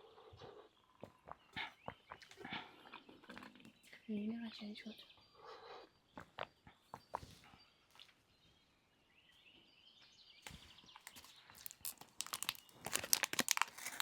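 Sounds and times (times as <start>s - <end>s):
faint bird chirping: 0.0s - 14.0s
rapid crunching and crackling: 10.5s - 14.0s.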